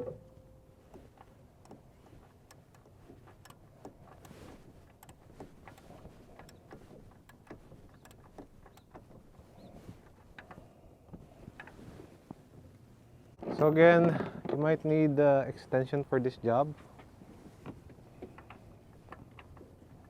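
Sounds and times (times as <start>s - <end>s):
ratchet wrench clicking: 1.6s - 8.9s.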